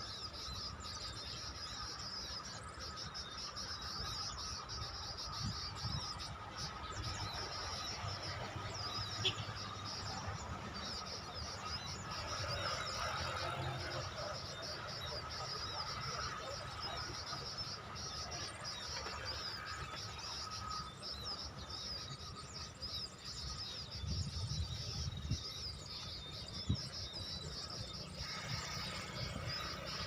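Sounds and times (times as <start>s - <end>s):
bird chirps: 0.0s - 30.0s
crickets and insects chorus: 0.0s - 30.0s.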